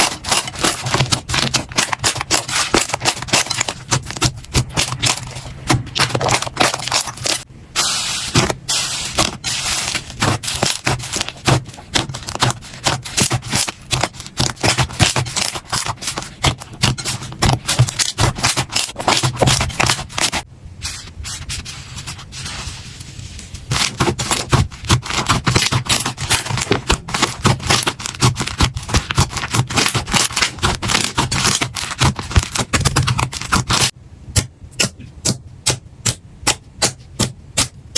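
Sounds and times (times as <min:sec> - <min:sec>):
steady low hum: 0:00.0 - 0:27.4.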